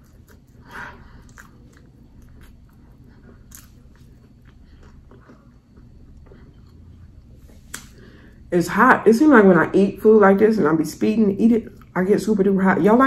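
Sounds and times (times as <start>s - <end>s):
person chewing crunchy fries: 0.0s - 8.0s.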